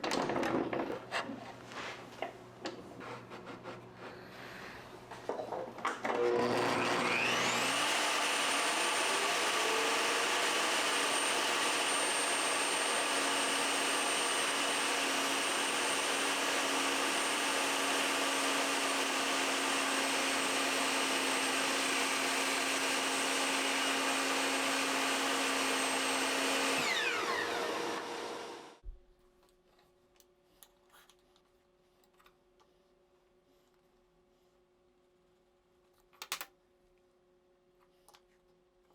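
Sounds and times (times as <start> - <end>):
power tool motor spinning: 6.1 - 16.2, 21.1 - 28.8.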